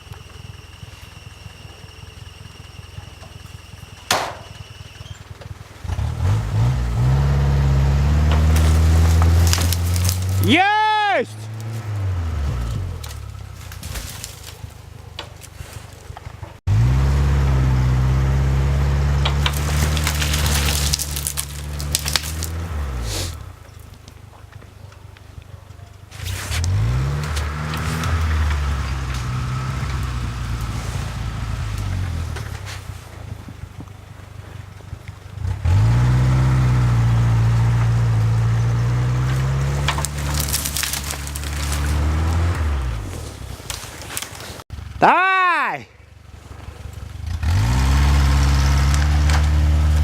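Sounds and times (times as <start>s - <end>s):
engine at high revs: 5.6s - 10.5s, 11.4s - 13.7s, 16.2s - 23.4s, 26.4s - 32.9s, 33.5s - 44.9s, 46.5s - 50.0s
crackling and snapping: 8.0s - 16.6s, 19.1s - 44.6s, 46.4s - 50.0s.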